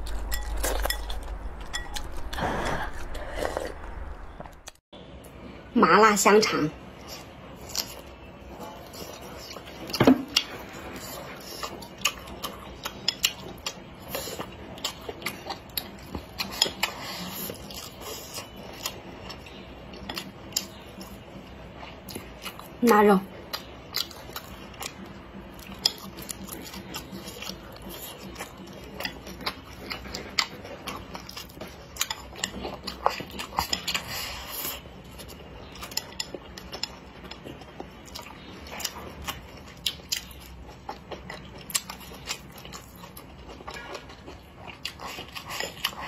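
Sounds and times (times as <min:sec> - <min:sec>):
close chewing with wet clicks: 0:08.8 - 0:22.8, 0:23.4 - 0:46.0.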